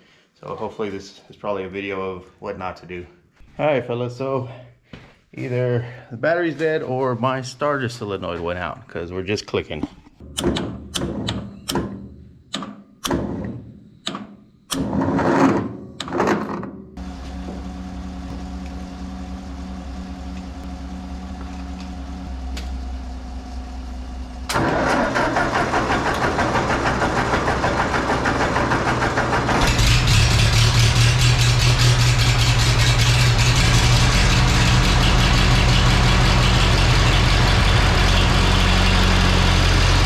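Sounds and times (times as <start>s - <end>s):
engine idling: 17.0s - 40.0s.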